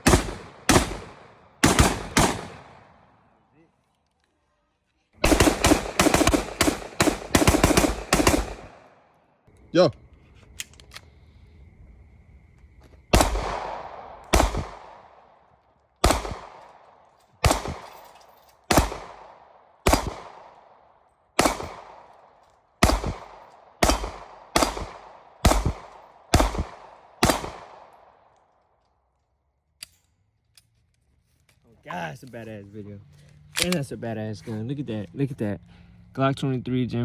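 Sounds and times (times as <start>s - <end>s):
gunshots with echo: 0.0s - 3.0s, 5.2s - 9.0s, 13.2s - 15.2s, 16.0s - 16.6s, 17.4s - 17.9s, 18.7s - 20.6s, 21.4s - 22.1s, 22.8s - 27.9s.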